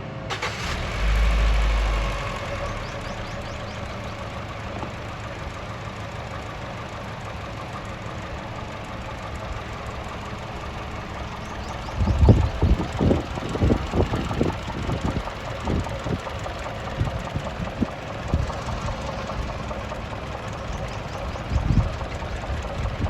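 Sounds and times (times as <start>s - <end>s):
car engine idling: 0.3s - 23.0s.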